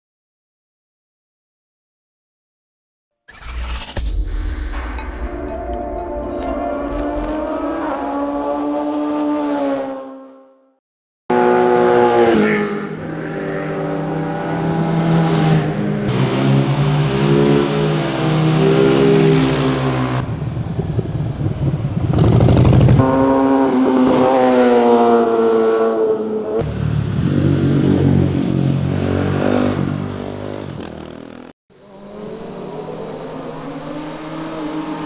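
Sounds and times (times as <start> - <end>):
motorcycles revving past: 11.3 - 31.5.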